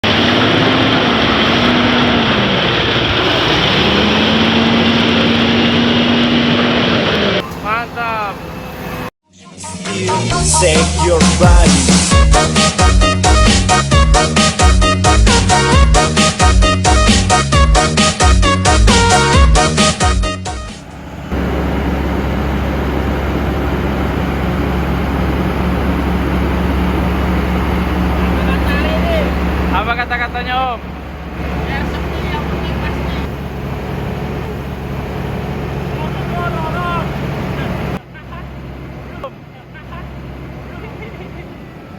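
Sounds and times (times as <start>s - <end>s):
road and wind noise: 0.0s - 9.1s, 17.7s - 41.9s
heavy truck engine drone: 0.0s - 41.9s.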